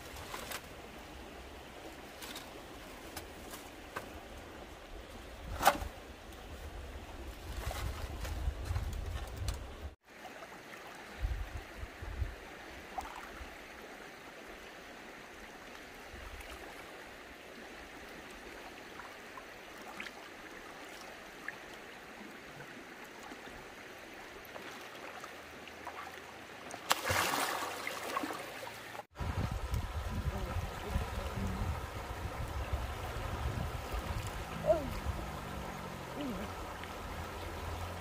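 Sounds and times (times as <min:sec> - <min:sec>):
flowing water rushing: 0:10.0 - 0:38.0
water splashing: 0:24.4 - 0:29.1, 0:30.5 - 0:38.0.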